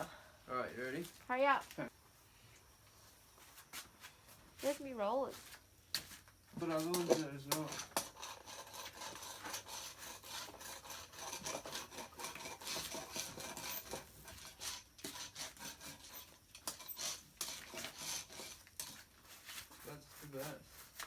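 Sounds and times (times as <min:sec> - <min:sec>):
tools scraping fiberglass: 0:06.6 - 0:21.0.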